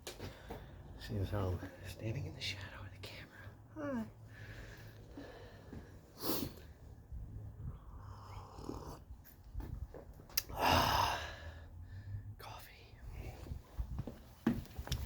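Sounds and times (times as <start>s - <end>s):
person breathing hard: 4.2s - 6.9s, 10.4s - 12.3s
breathy exhale or grunt: 10.5s - 12.1s.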